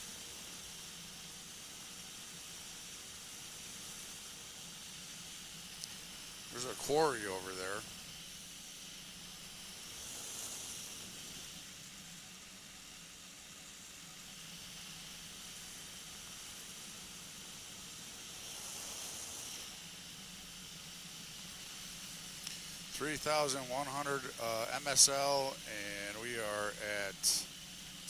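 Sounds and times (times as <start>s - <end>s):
engine and airflow hiss: 0.0s - 28.0s
faint low hum: 21.4s - 27.5s.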